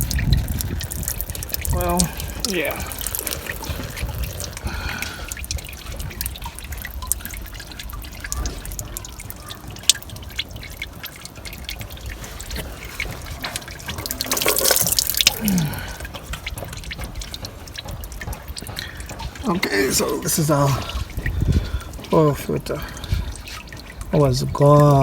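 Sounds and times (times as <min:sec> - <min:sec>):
oil dripping and trickling: 0:00.0 - 0:25.0.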